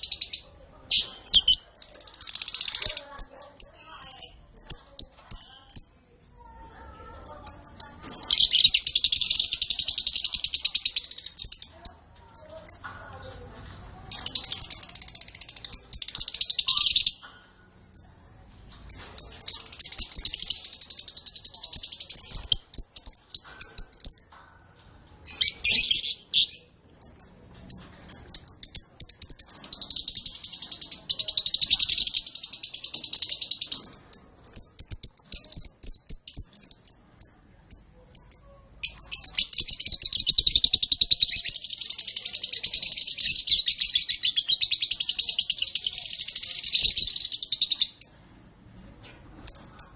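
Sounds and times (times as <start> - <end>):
canary trilling song: 0.0 - 12.9, 14.0 - 49.9.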